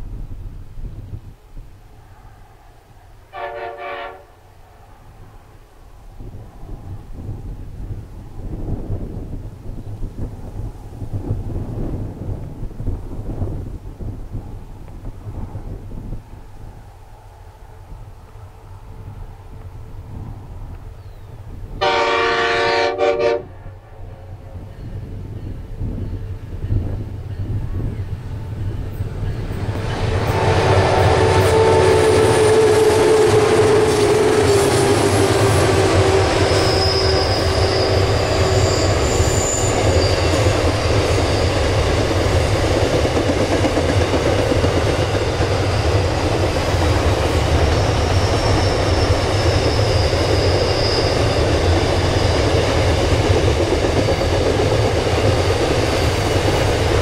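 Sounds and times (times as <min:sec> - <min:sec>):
diesel locomotive engines: 0:00.0 - 0:57.0
high wheel squeals: 0:28.8 - 0:42.1, 0:47.4 - 0:54.5.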